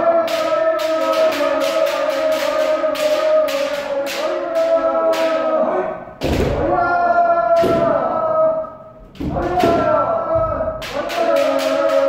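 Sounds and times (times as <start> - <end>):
person shouting: 0.0 - 12.0.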